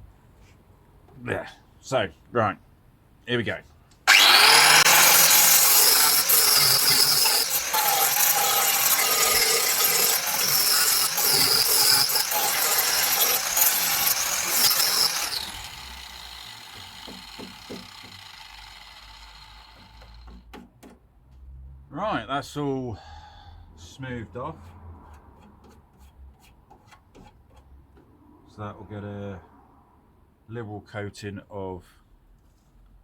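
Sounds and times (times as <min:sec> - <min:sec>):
grinder spinning down: 0:04.1 - 0:20.2
angle grinder grinding metal: 0:04.1 - 0:20.3.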